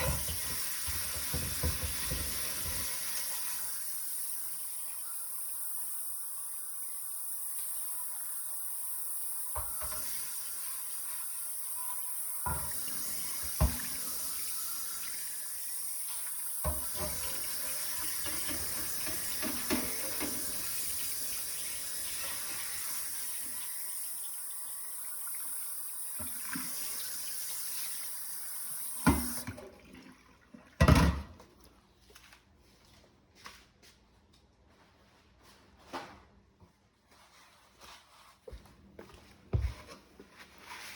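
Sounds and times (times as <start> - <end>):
iron knocking against sink: 0.0 - 3.0, 12.4 - 14.1, 16.6 - 20.8
tap water running into sink: 0.0 - 31.4.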